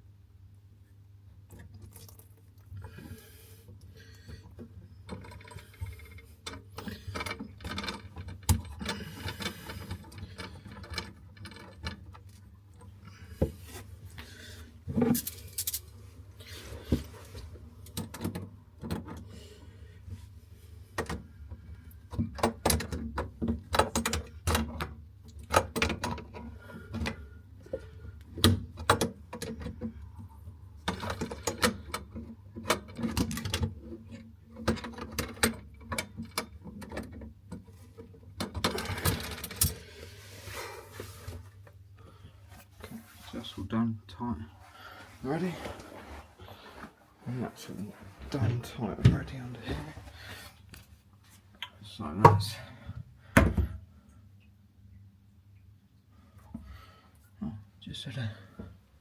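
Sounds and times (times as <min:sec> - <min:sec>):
hand tools on metal pipework: 0:02.8 - 0:20.2.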